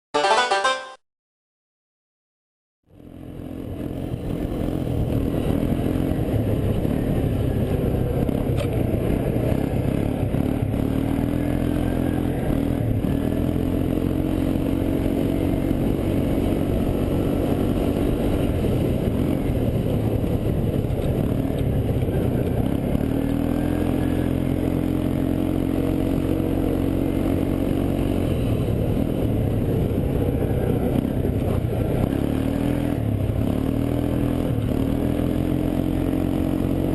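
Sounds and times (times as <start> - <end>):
atv engine revving: 3.0 - 36.9
clatter: 8.4 - 8.8.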